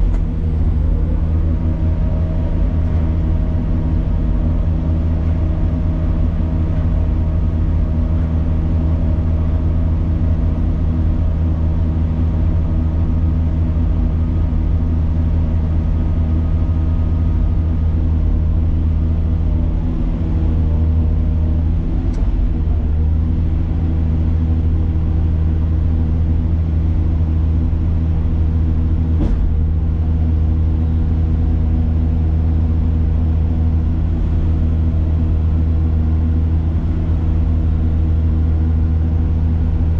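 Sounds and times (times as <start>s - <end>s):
heavy machine engine humming: 0.0s - 39.9s.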